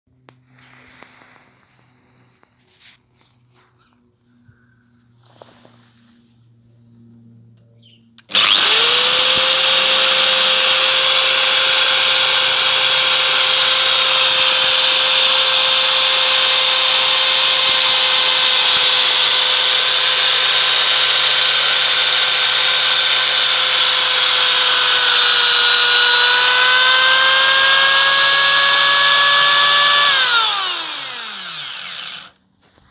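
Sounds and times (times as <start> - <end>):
angle grinder winding down: 8.2 - 32.3
angle grinder whining: 8.2 - 32.4.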